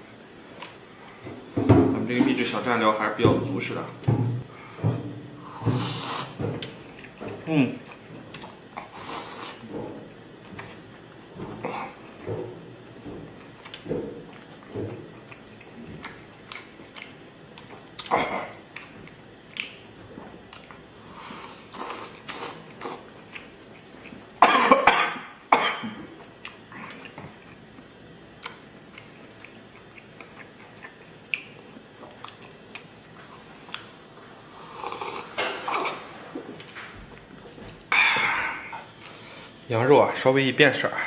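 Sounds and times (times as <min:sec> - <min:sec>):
person chewing: 0:05.4 - 0:09.7, 0:13.3 - 0:24.4, 0:26.2 - 0:39.6
loud cough: 0:24.4 - 0:26.0.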